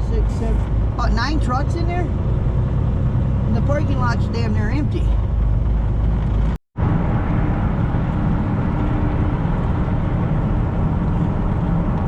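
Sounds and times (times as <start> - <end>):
truck engine and road noise: 0.0 - 12.0.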